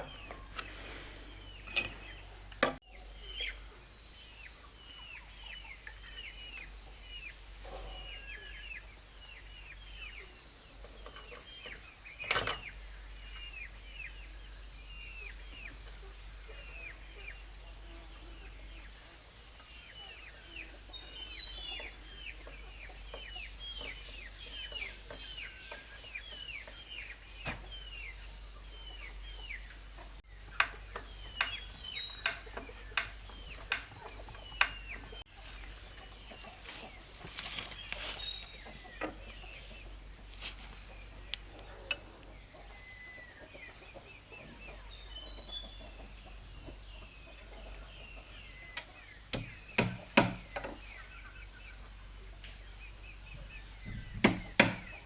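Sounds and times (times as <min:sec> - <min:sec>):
birds chirping: 0:00.0 - 0:55.0
sharp knocks: 0:49.4 - 0:50.6, 0:53.9 - 0:55.0.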